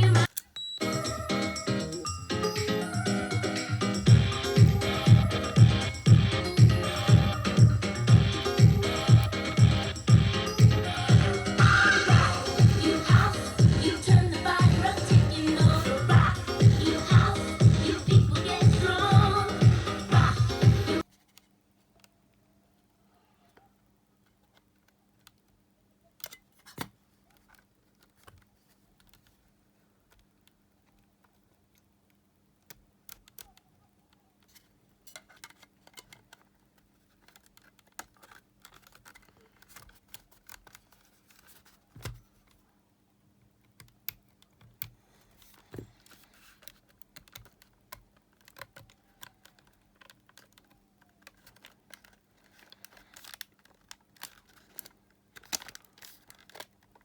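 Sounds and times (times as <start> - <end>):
clicks and taps of small parts: 34.4 - 42.6, 43.6 - 57.0.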